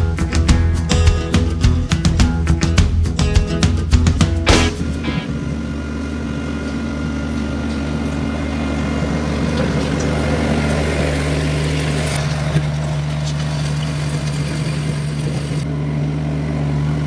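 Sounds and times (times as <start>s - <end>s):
diesel engine droning: 4.0s - 17.0s.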